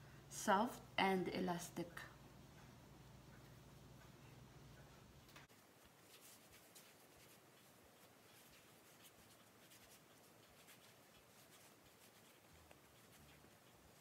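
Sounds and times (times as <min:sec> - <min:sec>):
dough kneaded by hand: 0:03.6 - 0:14.0.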